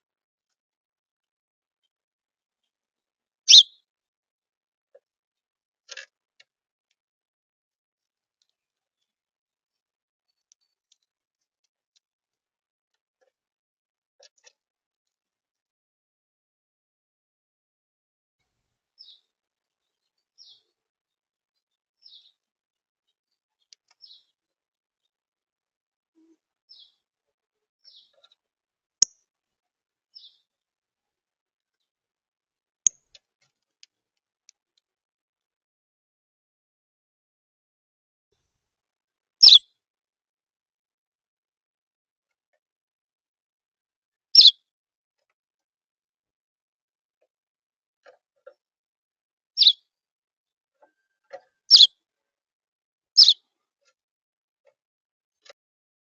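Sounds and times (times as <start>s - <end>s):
small birds chirping: 3.5s - 3.8s, 19.0s - 20.7s, 22.0s - 22.4s, 23.6s - 24.4s, 26.2s - 27.0s, 27.8s - 28.4s, 30.1s - 30.5s, 39.4s - 39.6s, 49.6s - 49.8s, 51.3s - 51.9s, 53.2s - 53.5s.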